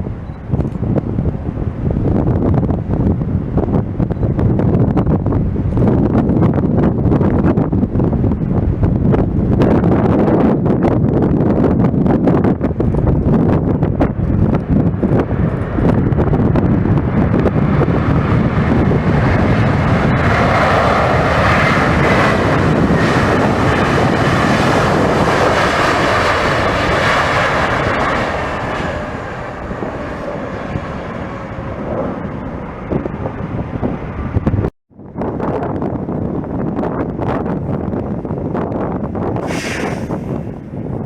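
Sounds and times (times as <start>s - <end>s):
jet airliner flying past: 0.0s - 34.7s, 39.2s - 41.0s
wind buffeting microphone: 0.0s - 41.0s.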